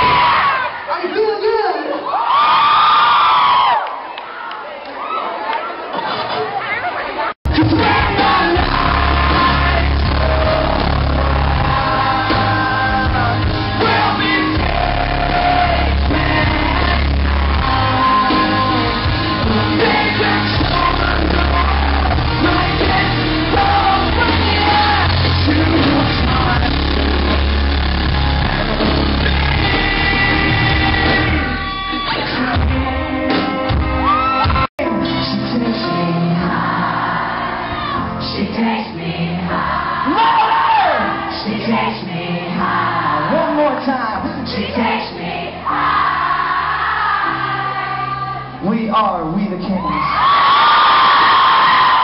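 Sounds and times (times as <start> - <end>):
heavy pulsing bass: 7.5 - 32.7
live rock band playing: 7.5 - 38.8
lead singer: 7.5 - 52.0.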